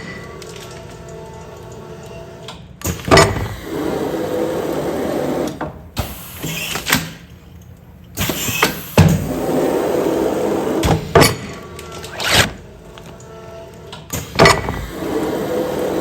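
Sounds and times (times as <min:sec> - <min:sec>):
machine motor running: 0:00.0 - 0:06.2, 0:08.2 - 0:16.0
sealing machine clunks and knocks: 0:02.8 - 0:03.6, 0:14.0 - 0:15.0.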